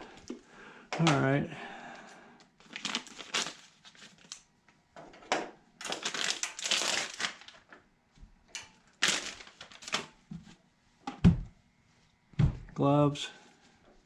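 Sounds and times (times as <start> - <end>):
packaging crinkling and rustling: 2.6 - 4.5, 5.8 - 7.9, 8.9 - 10.2.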